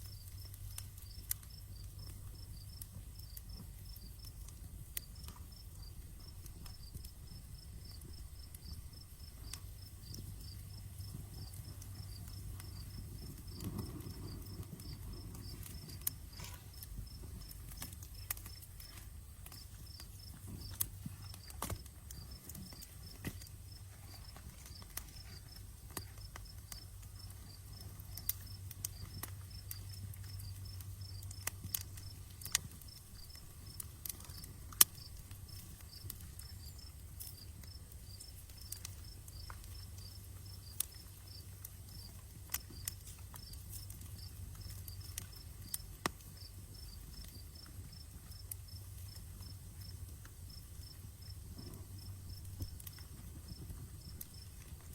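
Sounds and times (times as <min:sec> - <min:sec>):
steady low rumble: 0:00.0 - 0:37.2
campfire crackling and popping: 0:00.0 - 0:54.9
crickets chirping: 0:00.0 - 0:54.9.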